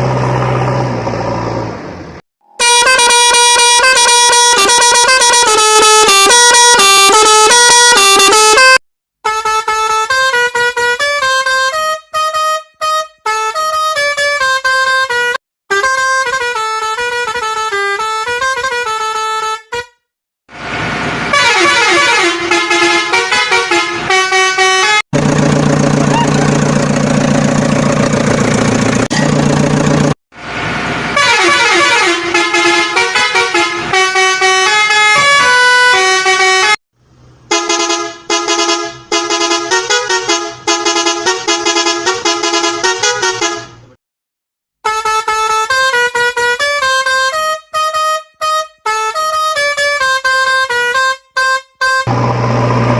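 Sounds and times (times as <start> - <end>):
vehicle horns playing tunes: 2.4 - 20.1, 21.3 - 25.0, 31.2 - 36.8, 37.5 - 44.0, 44.8 - 52.9
long steady horn blast: 2.6 - 20.0, 21.3 - 25.0, 31.2 - 36.8, 37.5 - 43.8, 44.8 - 52.9.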